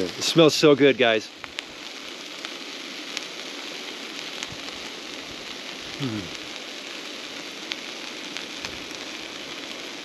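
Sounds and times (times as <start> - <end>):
fish sizzling in a pan: 0.0 - 10.0
man humming with enjoyment: 5.9 - 6.4.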